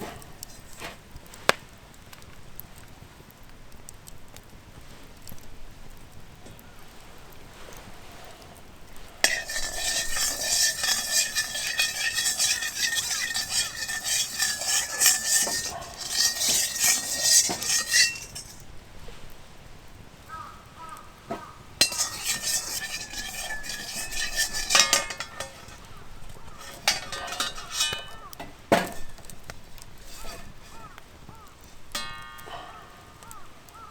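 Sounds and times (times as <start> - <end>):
metal utensil scraping metal pan: 0.0 - 0.9, 9.2 - 18.6, 21.3 - 33.9
hiss from pan: 9.2 - 18.6.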